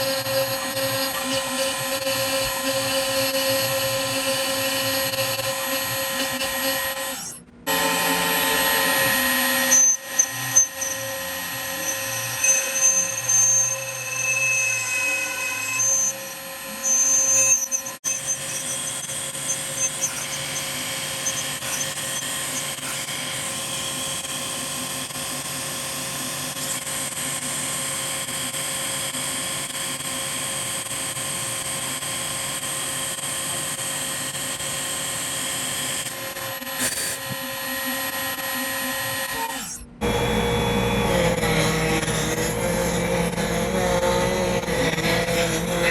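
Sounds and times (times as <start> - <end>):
power tool whining: 0.0 - 45.9.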